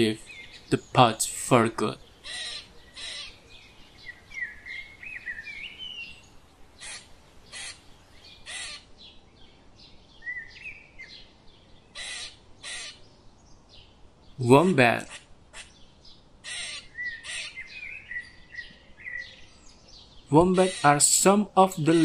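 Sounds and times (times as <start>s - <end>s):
short harsh bird calls: 2.2s - 9.0s, 11.9s - 13.1s, 14.4s - 19.5s, 20.2s - 21.2s.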